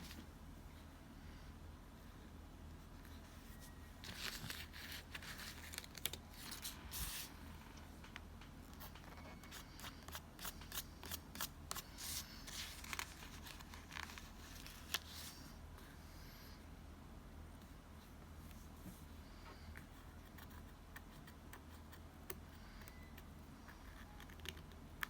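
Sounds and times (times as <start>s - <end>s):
faint room hum: 0.0s - 25.0s.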